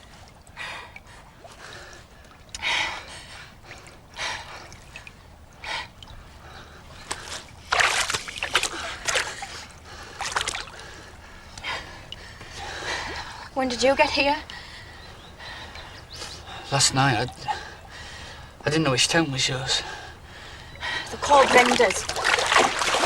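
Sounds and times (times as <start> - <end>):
swimming splashes: 6.5 - 11.0, 21.2 - 23.0.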